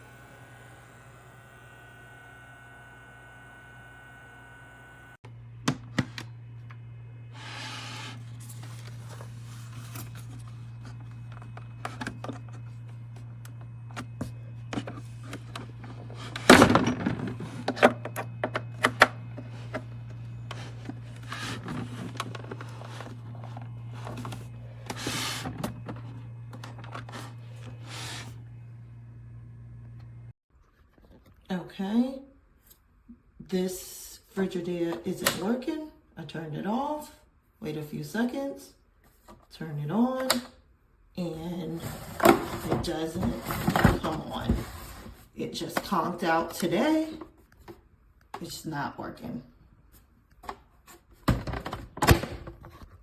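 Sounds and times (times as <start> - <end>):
low electrical hum: 0.0 - 30.4.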